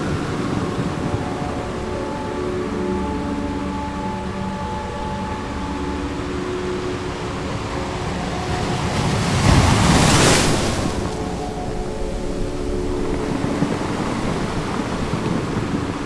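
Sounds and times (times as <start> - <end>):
ocean waves washing: 0.0 - 16.0
soft sustained drone: 0.0 - 16.0
wave breaking loudly: 7.6 - 16.0.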